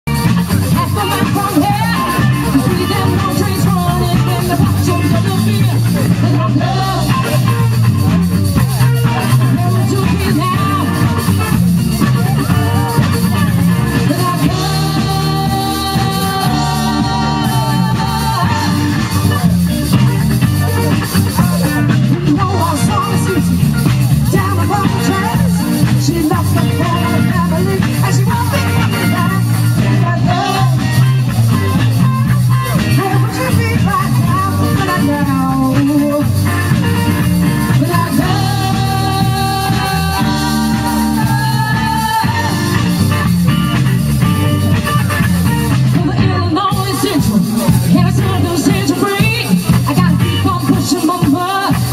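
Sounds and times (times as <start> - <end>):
rock band playing: 0.0 - 51.9
singer holding long note: 14.3 - 19.1.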